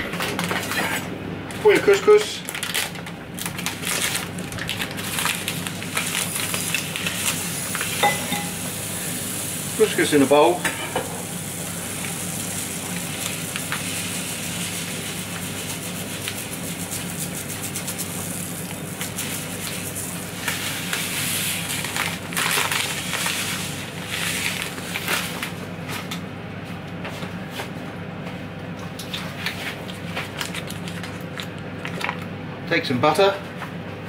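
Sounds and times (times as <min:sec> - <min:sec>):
plastic bag crinkling: 0:02.4 - 0:07.4, 0:21.7 - 0:25.5, 0:30.2 - 0:32.2.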